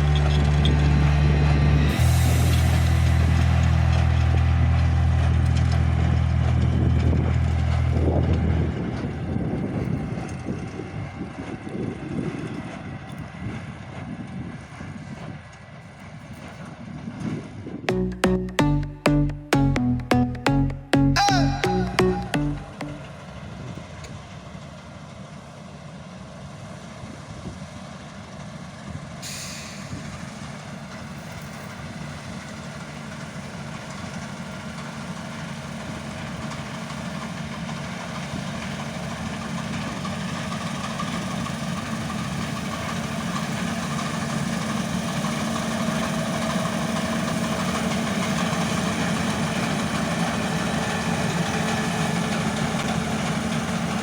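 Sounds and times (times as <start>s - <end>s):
diesel engine running: 0.0s - 9.4s.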